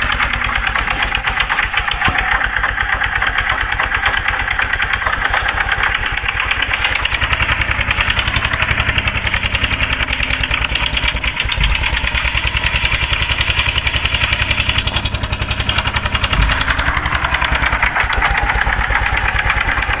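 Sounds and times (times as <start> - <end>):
tractor diesel engine chugging: 0.0 - 20.0
low thumps: 13.7 - 19.8.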